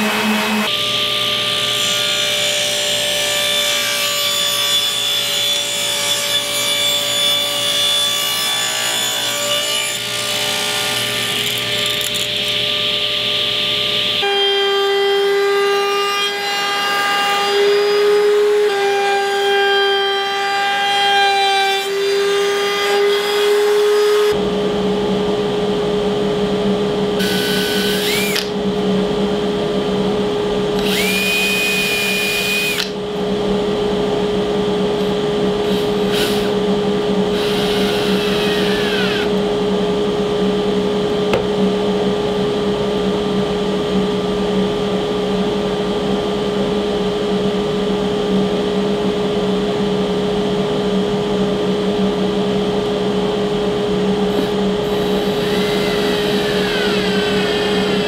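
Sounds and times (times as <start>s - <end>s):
steady background hum: 0.0s - 18.2s, 22.1s - 58.0s
table saw cutting wood: 0.0s - 25.0s, 27.1s - 42.6s, 54.3s - 58.0s
cordless drill whining: 10.0s - 12.8s, 27.2s - 28.6s, 30.8s - 33.0s, 35.6s - 36.6s, 37.3s - 39.4s, 54.3s - 58.0s.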